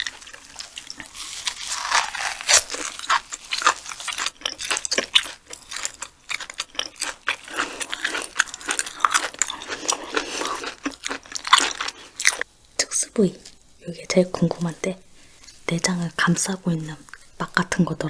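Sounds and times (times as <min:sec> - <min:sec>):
chewing and crunching crisp food: 0:00.0 - 0:12.5.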